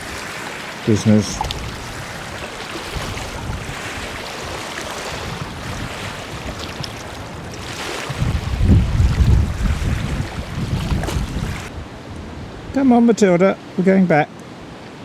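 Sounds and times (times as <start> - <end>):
wind buffeting microphone: 0.0 - 13.1
strong wind rushing: 0.9 - 12.9.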